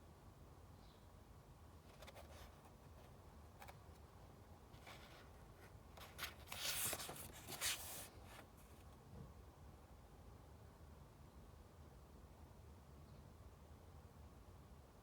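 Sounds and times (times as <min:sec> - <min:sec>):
book page turning: 0:06.0 - 0:08.5.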